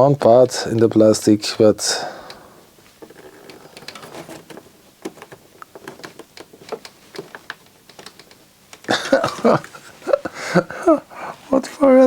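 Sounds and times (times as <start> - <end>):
plastic parts clicking: 3.0 - 9.0.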